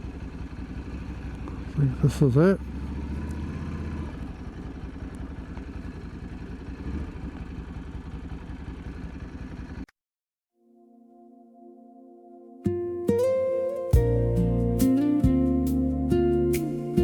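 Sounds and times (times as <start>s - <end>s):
motorcycle engine rumbling: 0.0s - 9.9s
soft sustained music: 10.6s - 17.0s.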